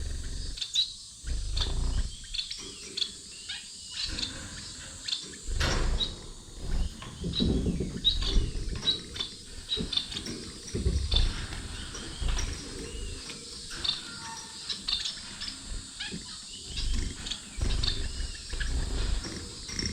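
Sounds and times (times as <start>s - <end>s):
finches chirping: 0.0s - 19.9s
rustling and bumping: 4.1s - 19.9s.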